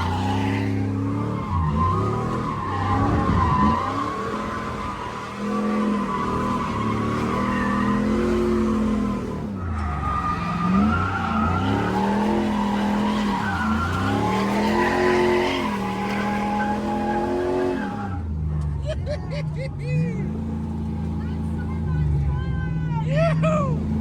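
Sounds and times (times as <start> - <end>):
tyres squealing: 0.0 - 18.2
car engine revving: 0.0 - 18.9, 19.7 - 22.7, 23.4 - 24.0.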